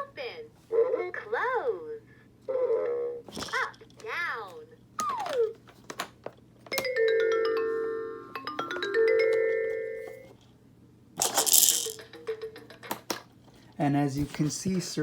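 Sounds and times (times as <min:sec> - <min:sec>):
toy playing xylophone notes: 0:06.7 - 0:10.3.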